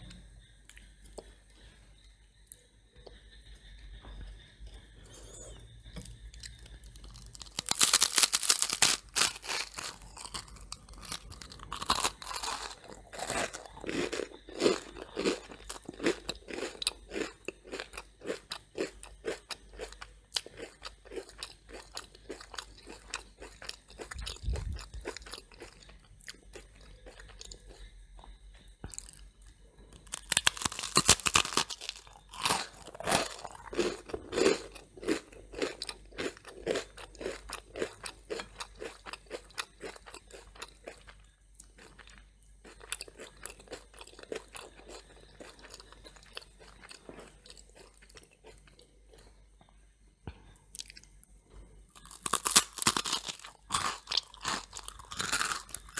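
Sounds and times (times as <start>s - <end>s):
close-up chewing: 5.8s - 49.7s, 51.9s - 55.9s
crunching bites into toast: 5.9s - 25.9s, 30.0s - 41.1s, 52.0s - 55.9s.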